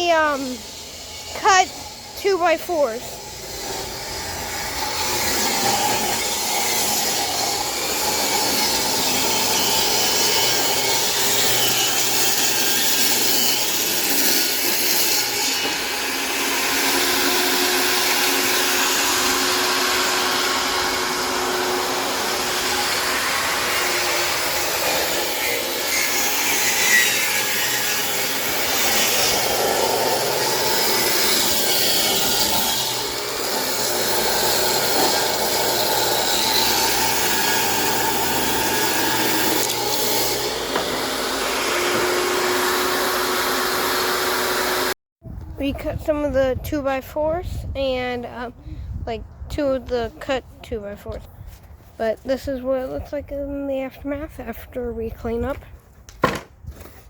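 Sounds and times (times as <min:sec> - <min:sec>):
table saw cutting wood: 0:00.0 - 0:45.0.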